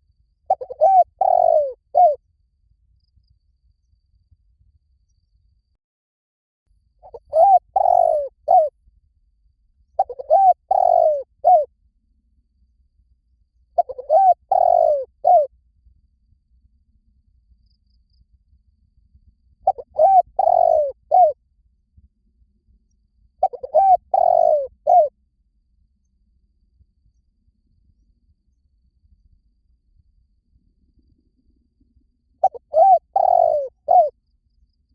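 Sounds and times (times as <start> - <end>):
dove cooing: 0.5 - 2.2, 7.0 - 8.7, 10.0 - 11.7, 13.8 - 15.5, 19.6 - 21.4, 23.4 - 25.1, 32.4 - 34.1.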